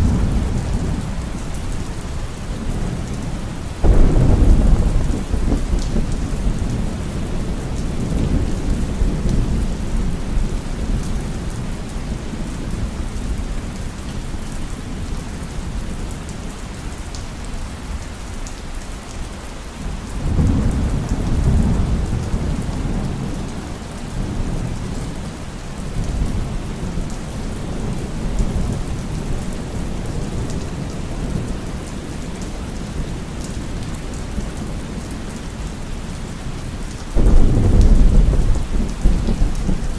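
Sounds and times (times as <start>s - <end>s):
thunder rumbling: 0.0s - 10.4s, 37.2s - 39.9s
heavy rain falling: 0.0s - 39.9s.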